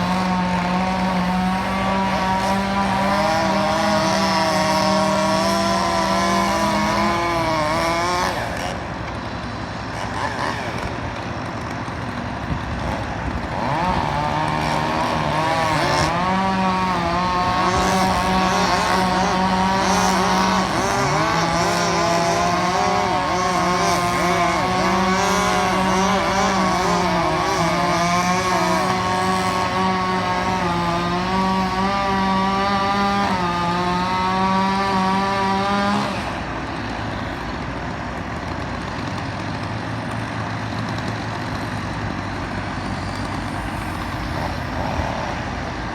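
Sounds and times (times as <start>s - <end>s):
chainsaw engine running at high revs: 0.0s - 45.9s.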